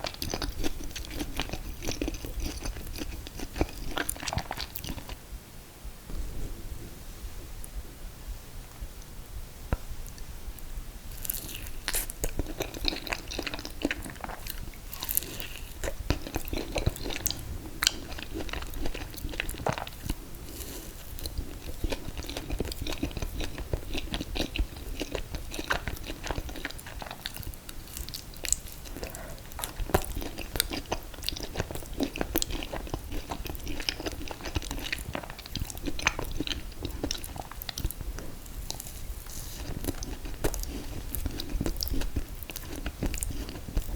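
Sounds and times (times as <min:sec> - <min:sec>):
person chewing: 0:00.0 - 0:05.2, 0:11.1 - 0:43.9.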